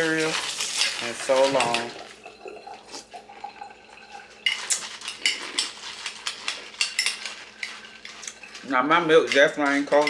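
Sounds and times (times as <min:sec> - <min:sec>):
spoon clinking against bowl: 0:03.6 - 0:10.0.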